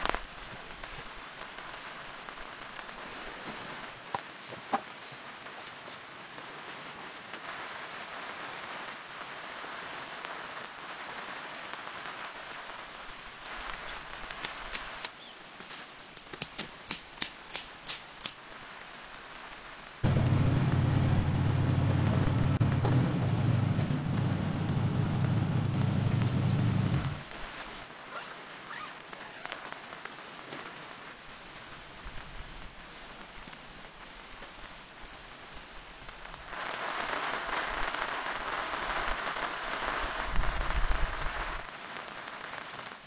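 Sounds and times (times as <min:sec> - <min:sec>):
steady rain falling: 0:00.0 - 0:43.0
sharp clicks: 0:13.4 - 0:15.2, 0:16.2 - 0:18.4
steady low hum: 0:20.0 - 0:27.3.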